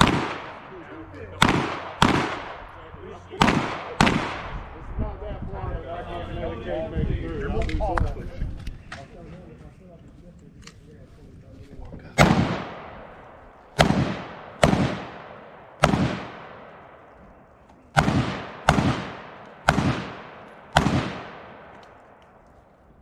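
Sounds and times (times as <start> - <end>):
gunshots with long echo: 0.0 - 4.8, 12.2 - 22.6.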